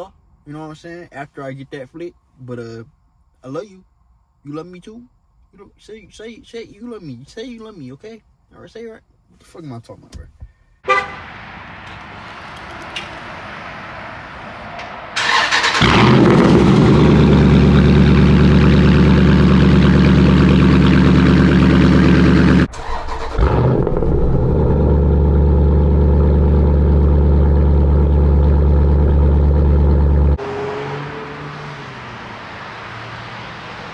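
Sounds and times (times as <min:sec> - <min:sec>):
engine idling: 0:14.8 - 0:30.4
engine cranking: 0:15.2 - 0:17.4, 0:18.9 - 0:26.0.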